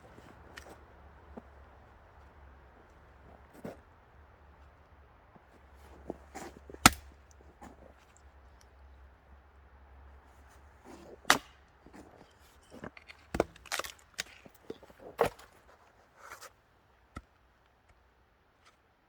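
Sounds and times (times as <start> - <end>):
axe chopping kindling: 6.7 - 7.2, 11.2 - 11.7, 12.9 - 15.6.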